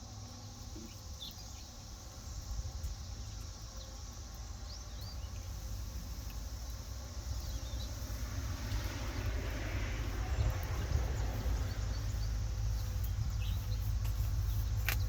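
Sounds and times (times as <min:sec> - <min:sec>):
insect chorus: 0:00.0 - 0:15.0
bird chirps: 0:10.3 - 0:15.0.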